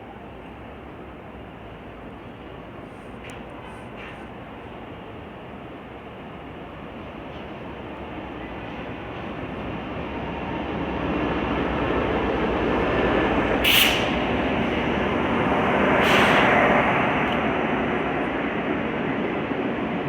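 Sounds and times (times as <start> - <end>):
train rumbling past: 0.0 - 20.0
hissing bursts: 13.6 - 14.3.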